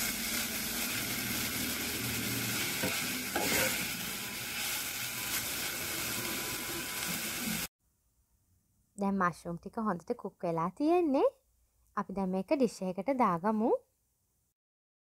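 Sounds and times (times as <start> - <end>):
vegetables sizzling in a pan: 0.0 - 7.7
spoon knocking and scraping pan: 2.6 - 4.0.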